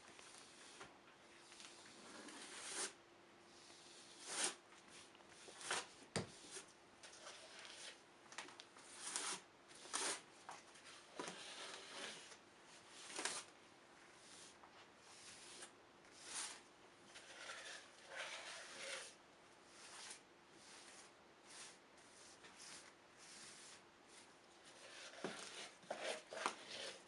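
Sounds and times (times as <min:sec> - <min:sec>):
putty smearing swishes and scrapes: 0:10.8 - 0:27.0.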